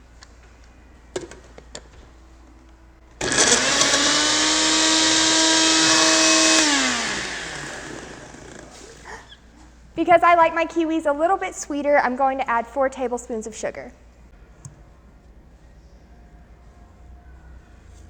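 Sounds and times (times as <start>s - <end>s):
blender running: 3.2s - 9.2s.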